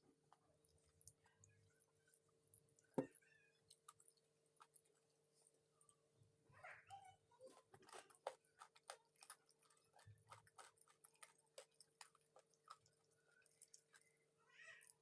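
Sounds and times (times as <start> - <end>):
chewing with crunches and clicks: 0.1 - 6.1, 7.4 - 15.0.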